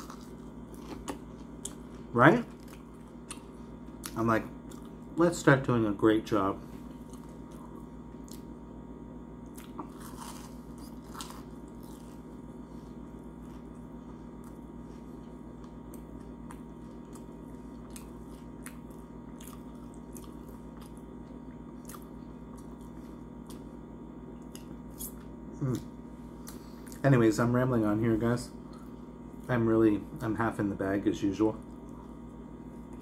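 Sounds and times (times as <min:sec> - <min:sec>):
person chewing crunchy food: 0:00.0 - 0:05.1, 0:06.8 - 0:08.6, 0:09.4 - 0:27.0
steady low hum: 0:00.0 - 0:33.0.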